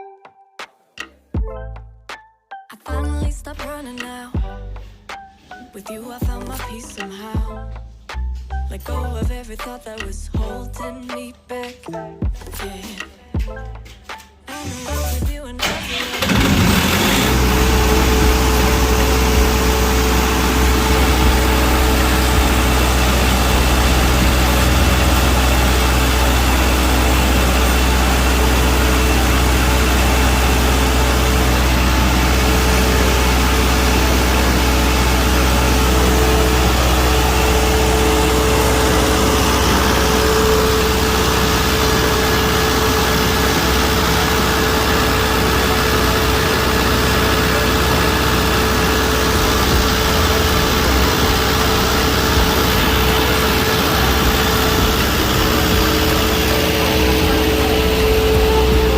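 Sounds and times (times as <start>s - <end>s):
generator engine drone: 14.8s - 58.9s
thin steady whine: 17.2s - 58.9s.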